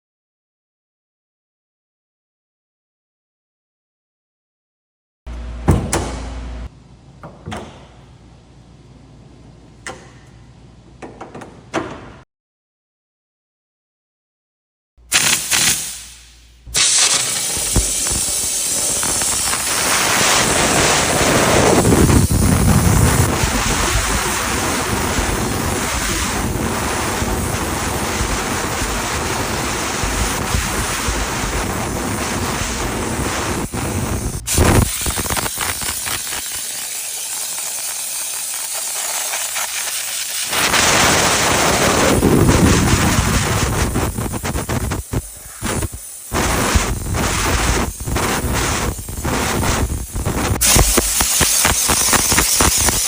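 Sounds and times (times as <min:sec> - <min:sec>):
steam cleaner jet hissing: 0:15.1 - 0:53.0.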